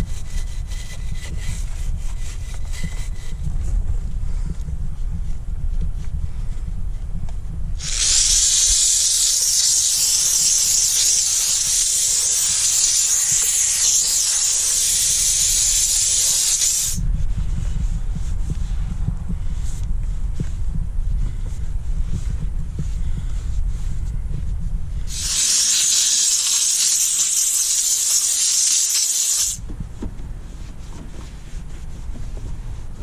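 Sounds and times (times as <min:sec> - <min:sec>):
low rumble: 0:00.0 - 0:09.0, 0:17.0 - 0:25.2
steam cleaner hissing: 0:07.8 - 0:17.0, 0:25.1 - 0:29.6.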